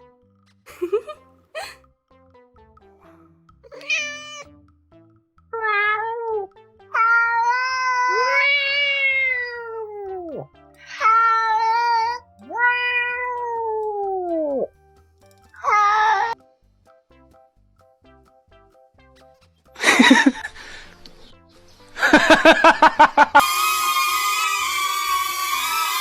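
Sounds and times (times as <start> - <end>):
cat meowing: 3.7 - 4.5, 5.6 - 14.7, 15.6 - 16.4.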